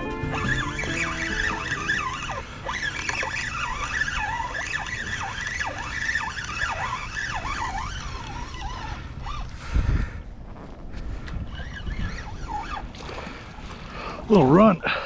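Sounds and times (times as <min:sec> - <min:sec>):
gulls calling: 0:00.0 - 0:09.5.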